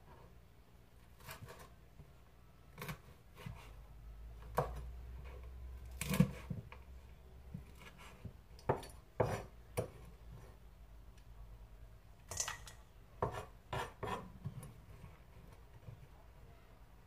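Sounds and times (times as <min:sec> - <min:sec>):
knife chopping on wooden board: 0:04.5 - 0:04.8, 0:05.9 - 0:06.7, 0:07.5 - 0:10.0, 0:13.2 - 0:14.3.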